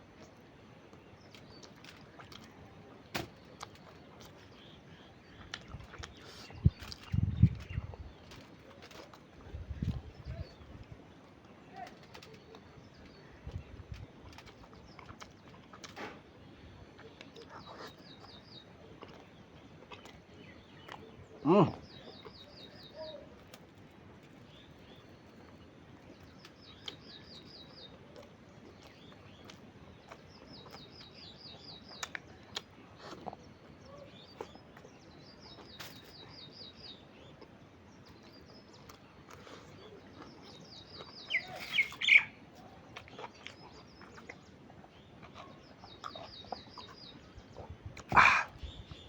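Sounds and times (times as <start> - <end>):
sharp bird calls: 40.2 - 42.4, 47.6 - 49.0.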